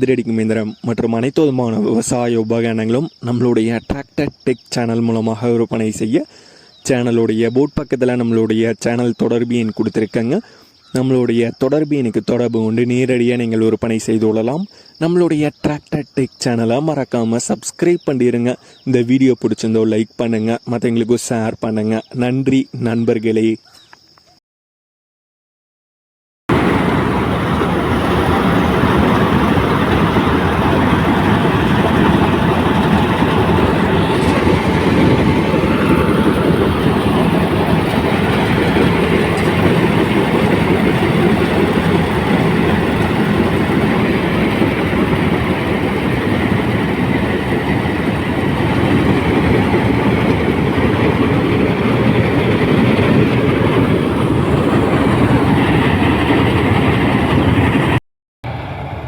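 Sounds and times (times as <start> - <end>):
harvester machinery rattling: 26.5 - 57.9.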